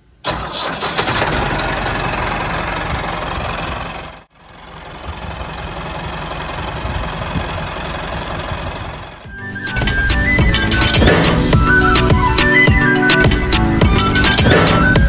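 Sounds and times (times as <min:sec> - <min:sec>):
small engine running: 0:00.3 - 0:11.9.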